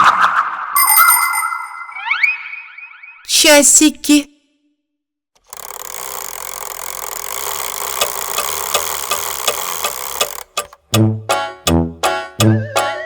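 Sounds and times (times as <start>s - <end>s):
clockwork whirring and ticking: 5.4s - 11.1s
children's song music: 10.8s - 13.0s.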